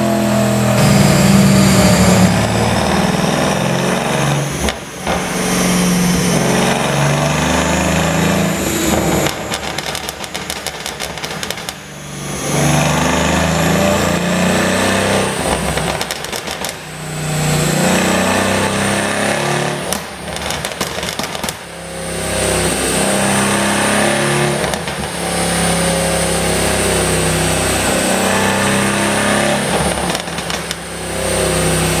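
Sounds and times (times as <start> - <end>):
car exhaust revving: 0.0 - 32.0
exhaust crackles and pops: 8.8 - 11.9, 15.4 - 16.9, 19.8 - 21.8, 24.5 - 25.3, 29.7 - 30.9.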